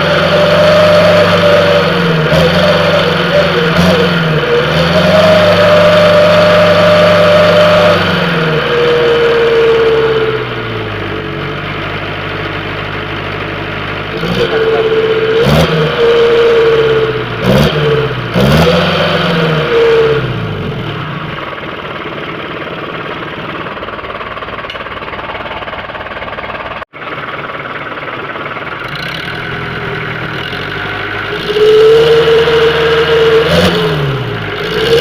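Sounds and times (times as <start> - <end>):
car engine revving: 0.0 - 12.0, 13.9 - 23.6, 28.8 - 35.0
howling exhaust tone: 31.3 - 35.0.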